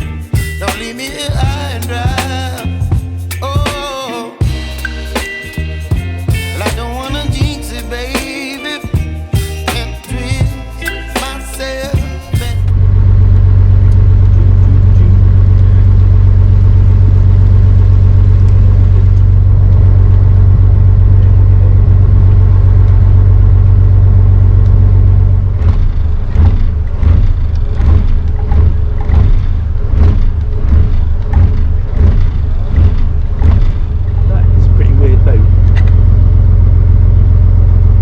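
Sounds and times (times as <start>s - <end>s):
boat engine low hum: 12.6s - 38.0s.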